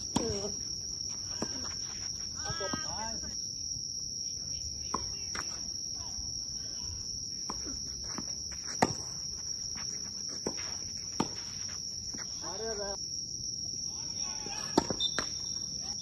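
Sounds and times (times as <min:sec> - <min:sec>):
tennis ball hit and bouncing: 0:00.0 - 0:03.1, 0:04.8 - 0:05.7, 0:07.4 - 0:12.3, 0:14.6 - 0:15.4.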